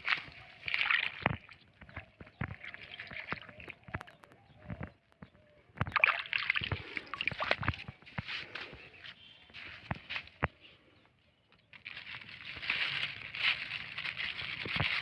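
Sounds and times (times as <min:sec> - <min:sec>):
plastic rustling and crinkling: 0:11.6 - 0:15.0.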